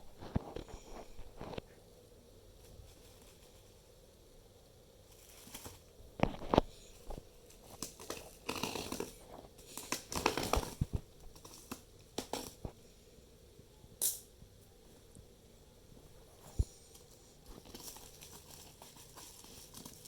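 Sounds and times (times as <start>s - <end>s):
paper rustling: 5.1s - 12.7s, 16.3s - 20.0s
plastic crinkling: 5.1s - 12.7s, 16.4s - 20.0s.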